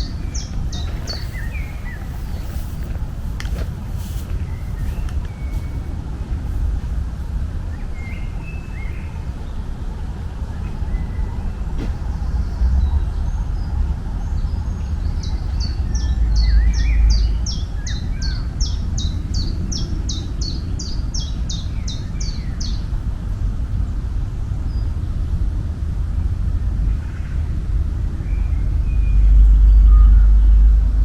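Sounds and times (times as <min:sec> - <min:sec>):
songbird singing falling notes: 0:00.0 - 0:03.6
steady low rumble: 0:00.0 - 0:31.0.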